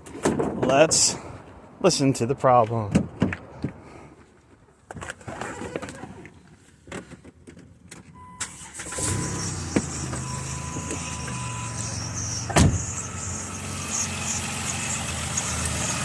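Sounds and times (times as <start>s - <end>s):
car engine starting and idling: 8.2s - 16.0s.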